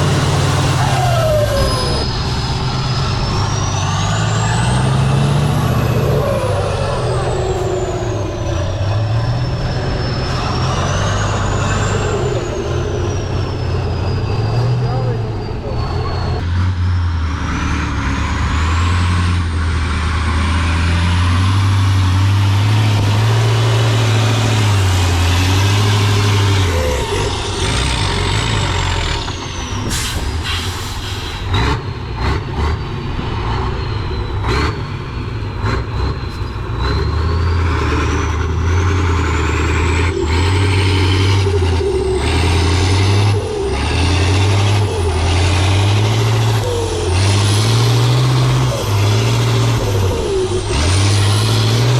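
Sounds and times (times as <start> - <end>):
diesel truck engine working hard: 0.0 - 51.9
high whistle rising and falling: 0.4 - 16.5.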